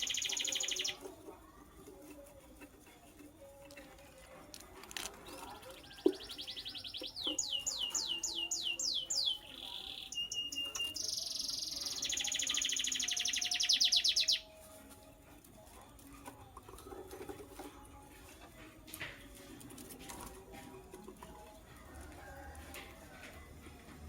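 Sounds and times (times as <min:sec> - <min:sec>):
bird singing trills and whistles: 0:00.0 - 0:01.0, 0:05.5 - 0:14.6.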